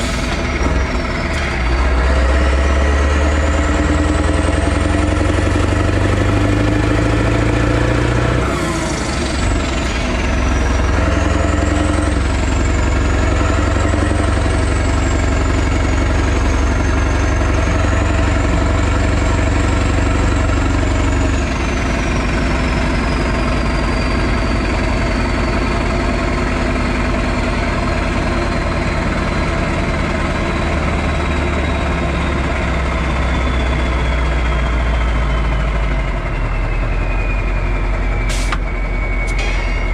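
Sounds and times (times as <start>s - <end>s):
diesel truck engine running: 0.0s - 39.9s
thin high whistle: 36.6s - 39.9s.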